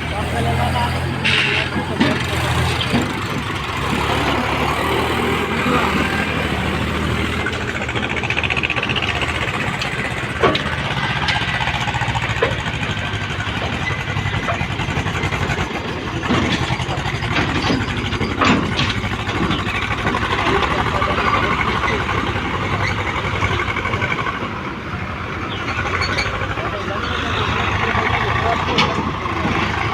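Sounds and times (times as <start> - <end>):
diesel engines running: 0.0 - 29.9
sharp knocks: 1.1 - 23.8.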